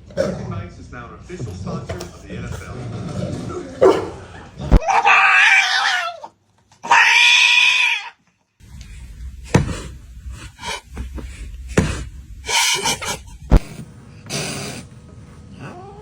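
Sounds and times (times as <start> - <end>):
cat yowling: 4.7 - 8.2
rustling: 8.6 - 14.0
sharp knocks: 9.0 - 13.8.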